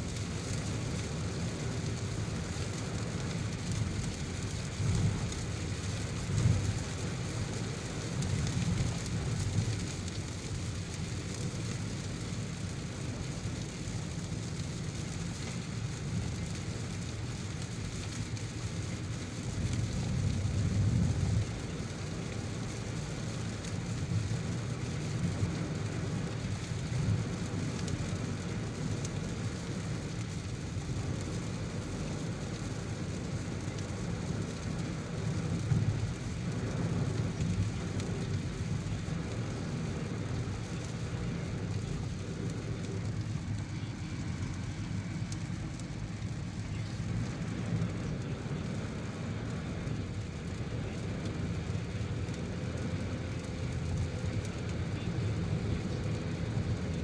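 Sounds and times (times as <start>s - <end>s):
heavy rain on a moving car: 0.0s - 57.0s
road noise: 0.0s - 57.0s
low rumbles: 19.1s - 57.0s.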